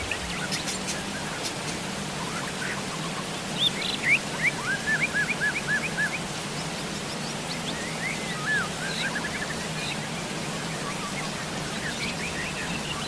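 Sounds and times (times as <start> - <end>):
songbird calling: 0.0 - 6.3
steady rain falling: 0.0 - 13.0.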